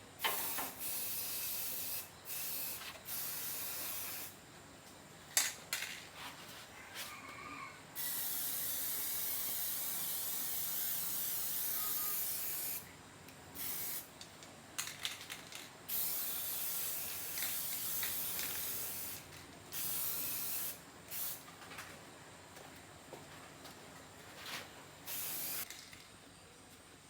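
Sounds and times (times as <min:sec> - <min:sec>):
spray hissing: 0:25.1 - 0:25.7.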